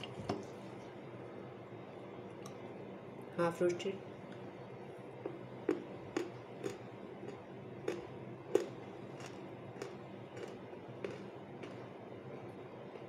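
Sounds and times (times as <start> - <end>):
person chewing crunchy clay: 5.7 - 11.9.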